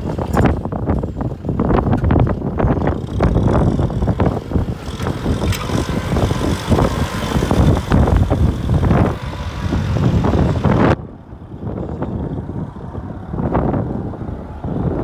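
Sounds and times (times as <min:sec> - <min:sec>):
tractor diesel engine running: 0:00.0 - 0:15.0
wind buffeting microphone: 0:00.0 - 0:15.0.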